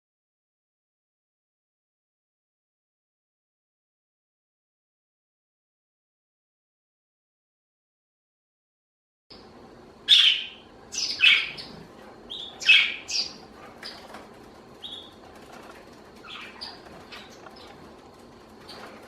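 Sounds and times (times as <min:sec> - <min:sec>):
budgerigar chirping: 0:10.1 - 0:14.2, 0:14.8 - 0:15.2, 0:16.2 - 0:17.8.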